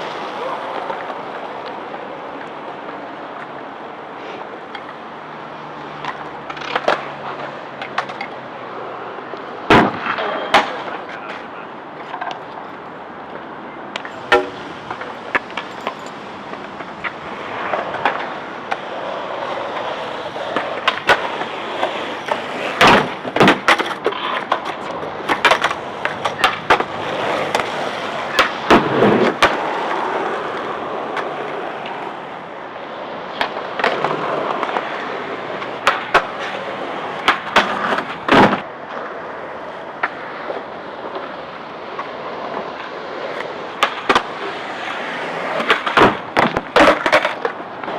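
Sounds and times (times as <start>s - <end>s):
skateboards rolling on hard surface: 0.0s - 47.9s
skateboards clacking on grind box: 12.0s - 32.1s, 33.3s - 39.2s, 40.0s - 47.9s.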